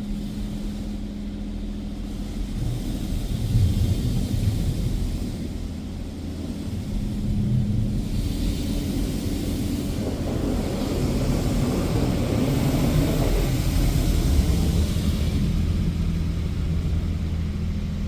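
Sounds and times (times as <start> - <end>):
car wash low rumble: 0.0 - 18.0.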